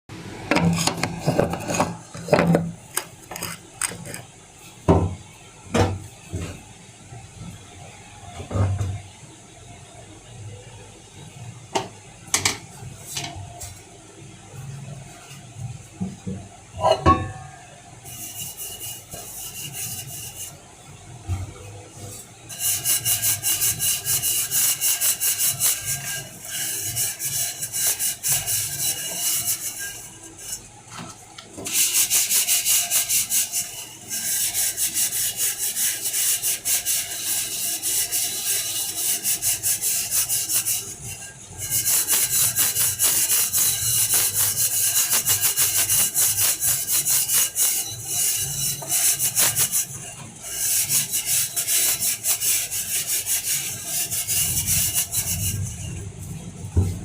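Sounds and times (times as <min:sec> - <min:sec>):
scourer scrubbing a pot: 0:00.5 - 0:04.3, 0:16.8 - 0:57.0.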